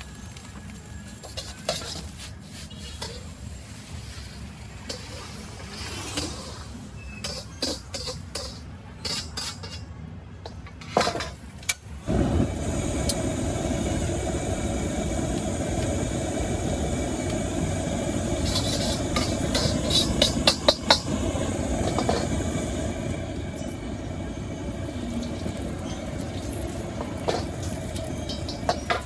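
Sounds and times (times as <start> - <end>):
gas burner roaring: 0.0 - 29.0
spatula clinking against wok: 7.2 - 11.2
metal utensils clinking: 7.2 - 11.8, 24.9 - 29.0.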